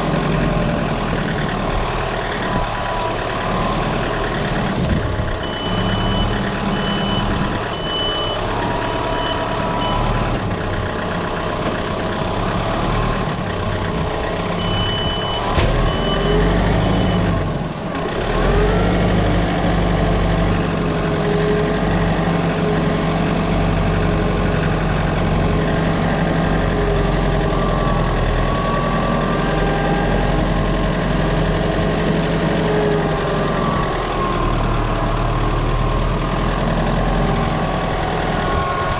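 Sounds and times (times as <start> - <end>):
backup alarm beeping: 5.4 - 10.1, 14.6 - 17.3.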